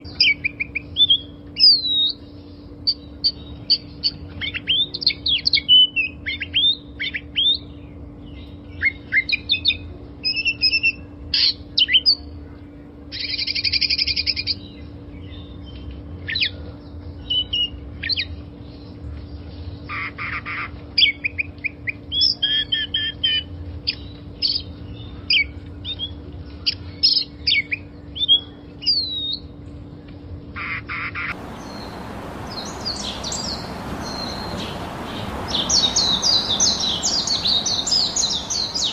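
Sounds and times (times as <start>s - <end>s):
hissing background: 31.3s - 38.9s
songbirds chirping: 31.3s - 38.9s
steady low hum: 31.3s - 38.9s
buzzy bird trill: 31.4s - 38.9s.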